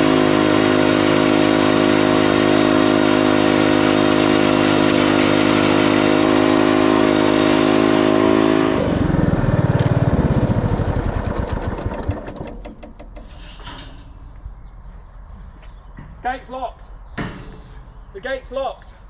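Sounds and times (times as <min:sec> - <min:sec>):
engine running and shutting off: 0:00.0 - 0:13.4.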